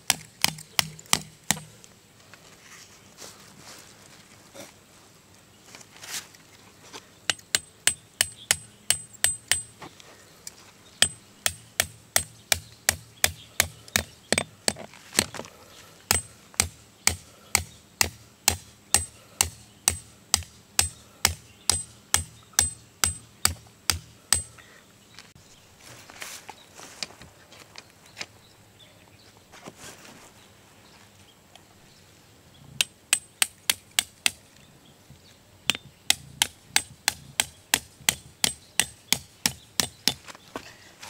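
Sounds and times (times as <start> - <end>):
hammer striking metal tent stake: 0.0 - 1.7, 7.3 - 9.8, 11.0 - 15.3, 16.1 - 24.5, 32.8 - 34.4, 35.7 - 40.2.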